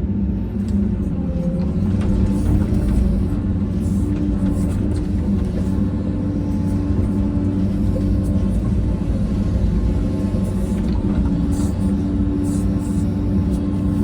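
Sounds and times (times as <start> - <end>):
diesel engine rumbling: 0.2 - 14.0.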